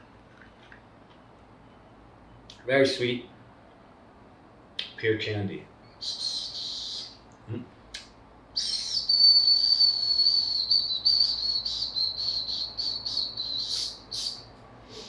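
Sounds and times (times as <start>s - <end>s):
high-pitched whistling: 6.0s - 7.2s, 8.6s - 14.4s.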